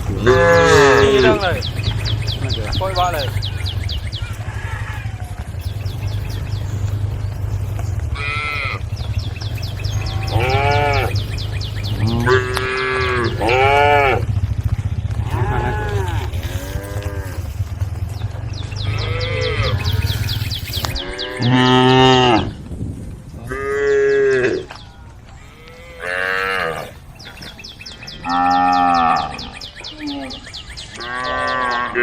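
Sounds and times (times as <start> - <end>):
cattle mooing: 0.0 - 14.4, 15.0 - 22.6, 23.5 - 24.8, 25.4 - 27.0, 28.2 - 32.0
steady low hum: 0.0 - 21.5.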